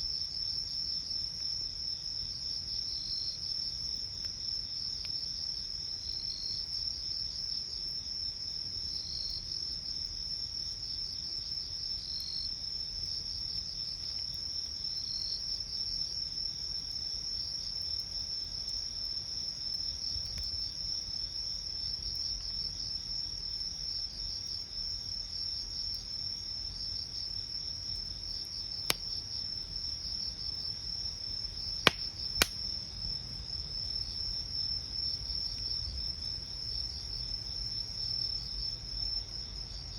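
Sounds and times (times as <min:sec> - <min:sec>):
sharp campfire pops: 0:19.7 - 0:20.6, 0:28.8 - 0:29.3, 0:31.5 - 0:33.1
campfire crackling: 0:19.7 - 0:21.0, 0:27.9 - 0:34.6.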